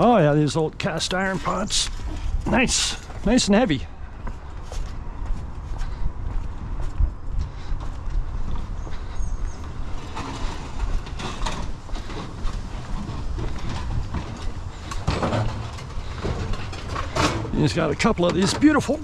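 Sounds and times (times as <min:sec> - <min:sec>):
pots scraping clatter: 0:01.0 - 0:03.2, 0:10.0 - 0:19.0.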